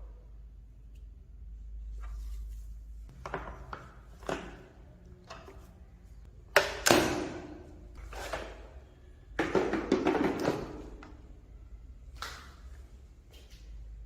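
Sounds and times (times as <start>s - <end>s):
vacuum mop rattling and scraping: 8.0s - 8.8s, 9.4s - 11.0s.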